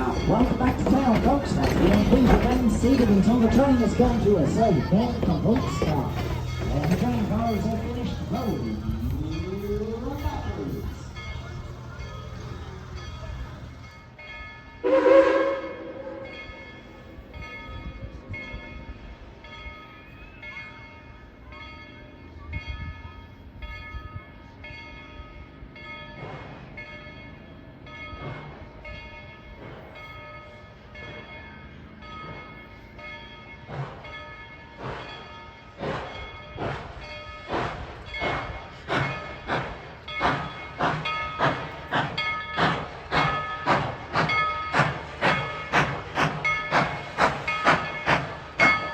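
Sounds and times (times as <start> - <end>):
steam locomotive chuffing: 0.0 - 14.2, 32.0 - 48.9
steam locomotive whistle: 14.8 - 16.2.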